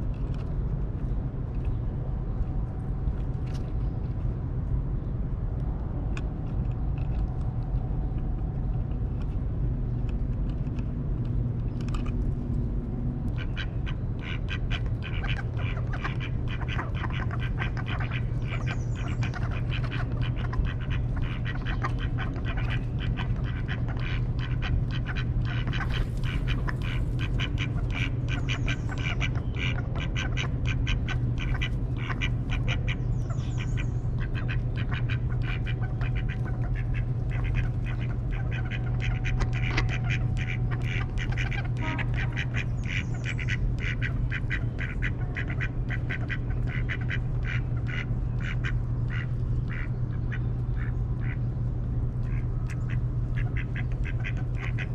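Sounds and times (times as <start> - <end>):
steady low hum: 0.0 - 54.9
ducks quacking: 13.3 - 51.5, 52.2 - 54.9.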